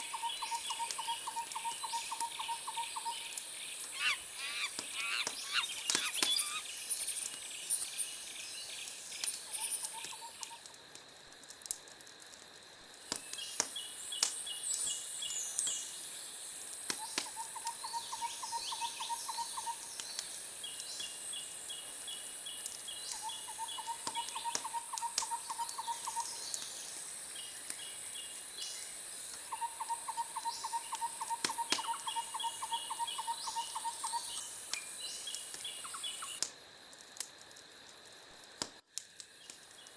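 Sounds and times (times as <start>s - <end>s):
rhythmic trilling calls: 0.0s - 8.2s
bird chirps: 0.0s - 8.9s
insect-like hiss: 0.0s - 39.9s.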